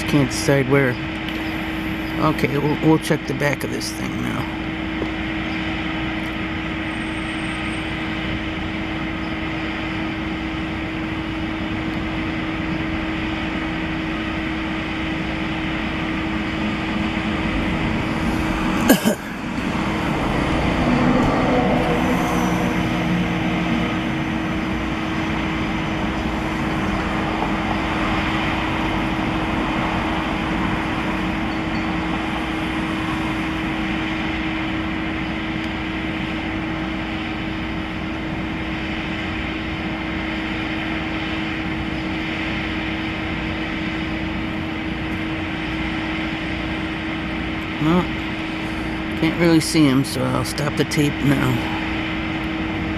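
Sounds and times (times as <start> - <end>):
city street traffic hum: 0.0 - 52.9
vehicle passing by: 16.9 - 31.4.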